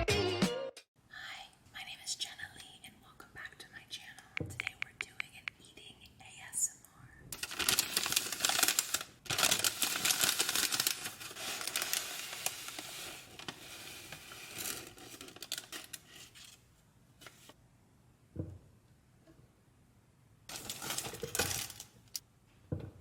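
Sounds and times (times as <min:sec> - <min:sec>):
packaging crinkling and rustling: 0:07.3 - 0:16.6, 0:20.5 - 0:22.2.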